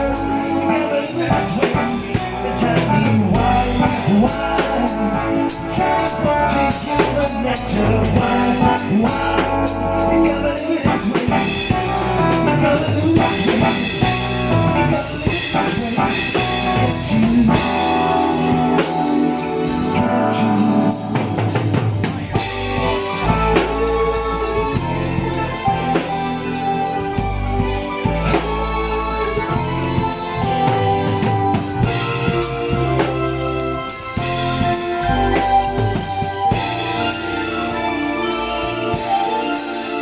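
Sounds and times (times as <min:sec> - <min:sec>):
band playing: 0:00.0 - 0:40.0
drum kit beat: 0:00.0 - 0:40.0.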